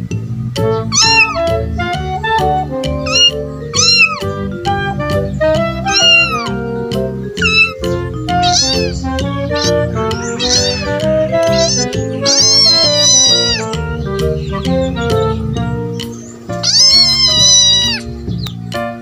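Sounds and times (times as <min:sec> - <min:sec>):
background music: 0:00.0 - 0:19.0
cat meowing: 0:00.8 - 0:02.0, 0:03.0 - 0:04.5, 0:05.8 - 0:06.7, 0:07.4 - 0:14.0, 0:16.6 - 0:18.1.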